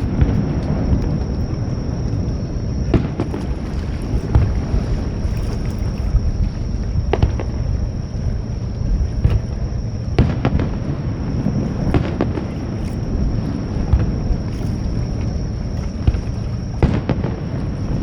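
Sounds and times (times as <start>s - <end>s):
continuous low rumble: 0.0s - 18.0s
fireworks bursting: 2.8s - 3.6s, 10.2s - 12.8s, 16.0s - 18.0s.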